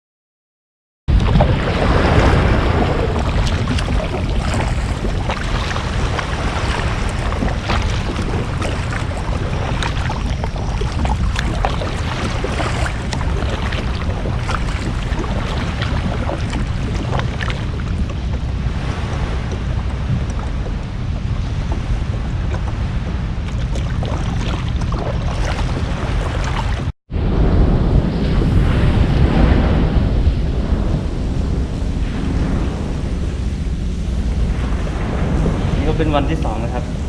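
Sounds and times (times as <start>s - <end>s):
small knocks and splashes: 1.1s - 26.9s
water lapping around a boat: 1.1s - 26.9s, 30.7s - 37.0s
wind buffeting microphone: 1.1s - 37.0s.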